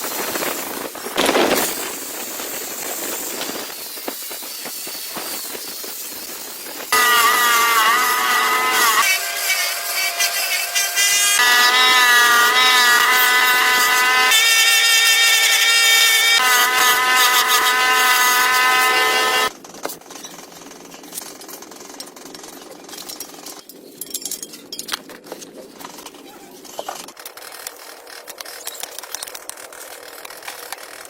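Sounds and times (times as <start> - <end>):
power tool whining: 6.9 - 19.5.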